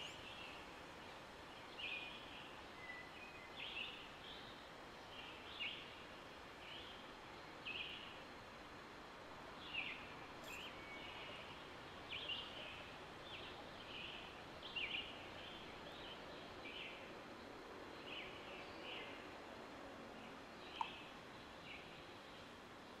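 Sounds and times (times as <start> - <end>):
small birds chirping: 0.0 - 4.6, 9.6 - 17.0, 20.7 - 22.4
faint steady outdoor hiss: 0.0 - 23.0.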